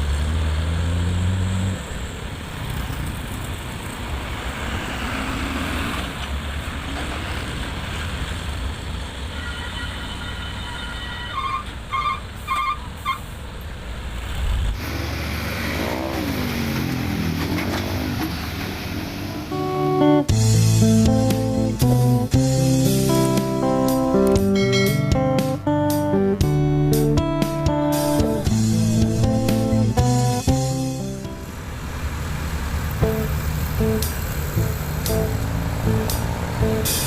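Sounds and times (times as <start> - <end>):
roadside traffic noise: 0.0 - 37.0
heavy diesel engine running: 13.9 - 37.0
music: 19.5 - 31.5, 33.0 - 37.0.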